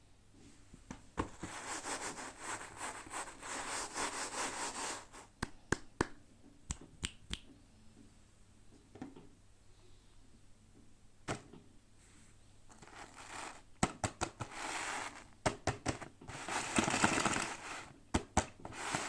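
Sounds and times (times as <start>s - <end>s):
packaging crackling: 12.7s - 17.9s.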